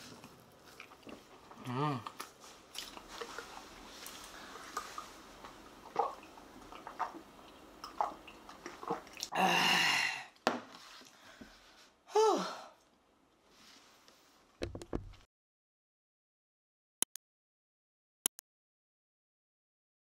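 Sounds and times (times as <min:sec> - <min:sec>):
person chewing: 0:00.0 - 0:09.4.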